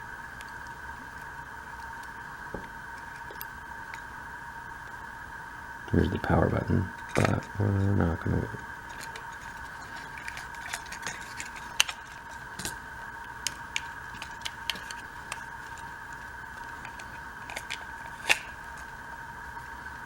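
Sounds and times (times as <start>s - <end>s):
faint steady whine: 0.0s - 20.0s
small parts clicking: 8.9s - 18.9s.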